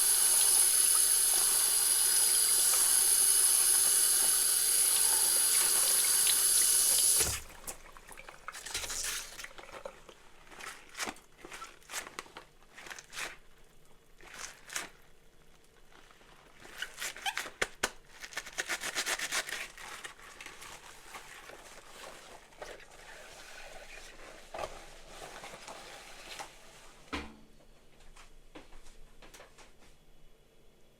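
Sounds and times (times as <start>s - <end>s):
kitchen tap running: 0.0s - 9.3s.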